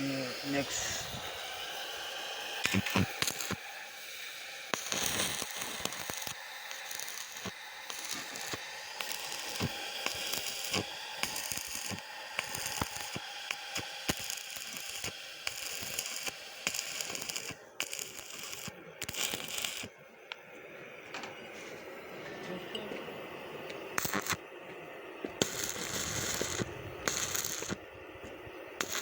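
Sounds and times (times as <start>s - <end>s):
welding arc crackling: 0.0s - 19.9s, 23.7s - 24.4s, 25.2s - 29.0s.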